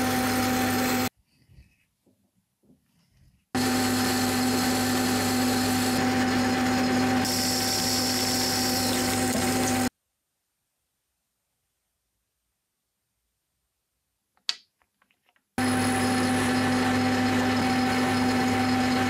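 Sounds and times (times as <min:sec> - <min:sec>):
electric power tool motor whine: 0:00.0 - 0:01.1, 0:03.6 - 0:09.9, 0:15.6 - 0:19.0.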